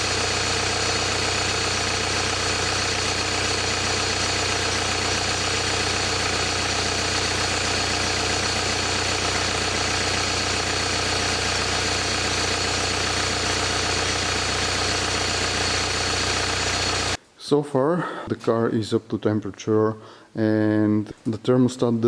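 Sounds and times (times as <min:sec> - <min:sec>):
car engine idling: 0:00.0 - 0:17.2.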